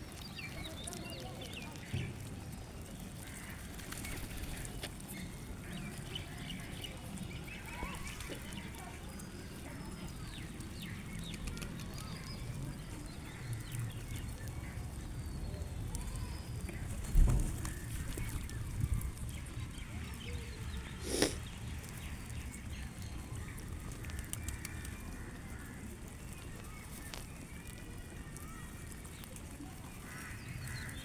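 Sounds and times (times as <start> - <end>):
flock of birds chirping: 0.0 - 31.0.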